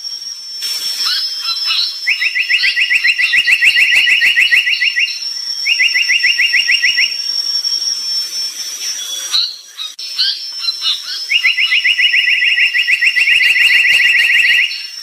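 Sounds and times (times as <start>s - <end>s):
songbird trilling: 1.0s - 7.3s, 8.1s - 15.0s
short high bird calls: 8.6s - 15.0s.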